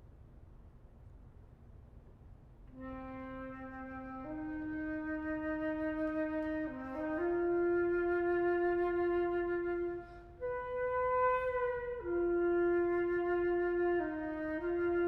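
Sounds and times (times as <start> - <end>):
solo flute playing: 2.7 - 15.0.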